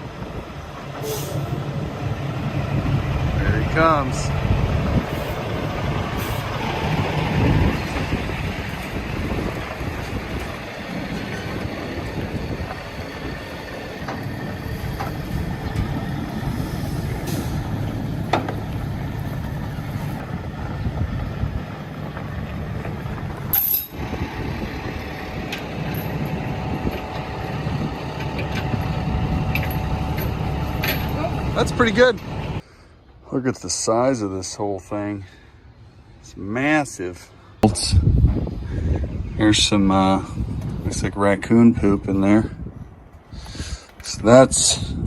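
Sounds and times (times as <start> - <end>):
heavy truck engine running: 0.0 - 32.6.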